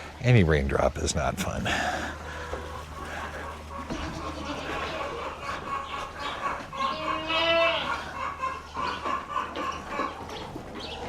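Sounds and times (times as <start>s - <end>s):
soft animal and movement sounds: 0.0s - 11.0s
farm animal drawn-out call: 2.1s - 10.5s.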